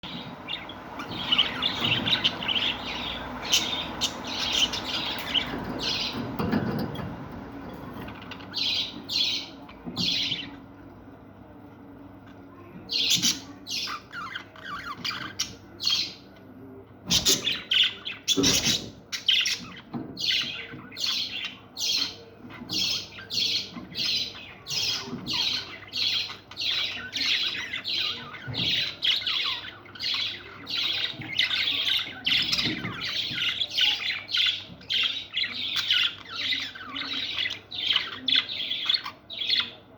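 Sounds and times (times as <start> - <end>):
parrots chirping and squawking: 0.0 - 11.0, 12.2 - 16.2, 17.0 - 39.8.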